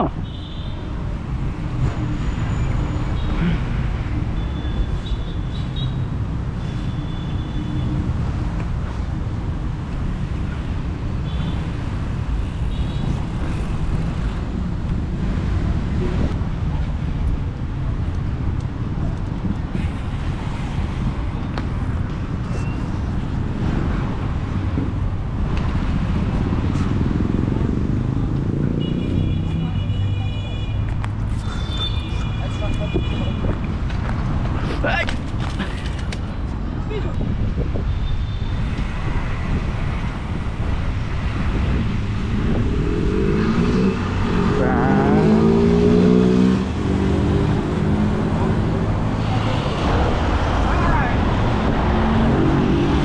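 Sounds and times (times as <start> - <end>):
road noise: 0.0 - 53.0
wind rumble on microphone: 8.0 - 28.5, 32.1 - 53.0
wind buffeting microphone: 32.8 - 44.3
vehicle engine revving: 41.5 - 53.0.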